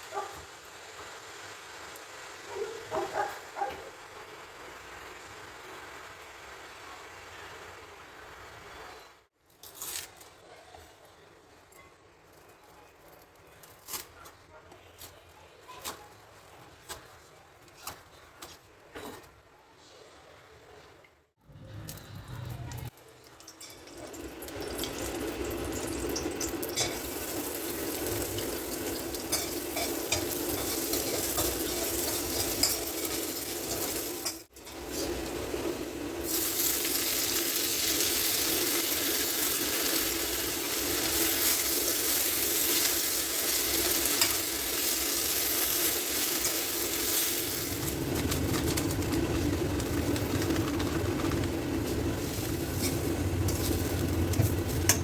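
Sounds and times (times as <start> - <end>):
oil sizzling in a pan: 23.2 - 49.5, 51.9 - 55.0
spatula scraping metal pan: 26.7 - 35.3.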